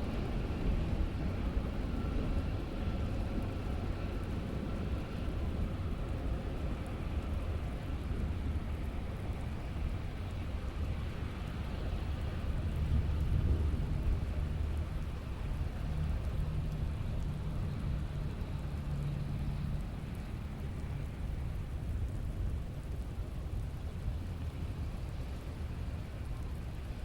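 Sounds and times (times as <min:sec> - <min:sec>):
steady rain falling: 0:00.2 - 0:27.0
low rumble of thunder: 0:12.6 - 0:18.4.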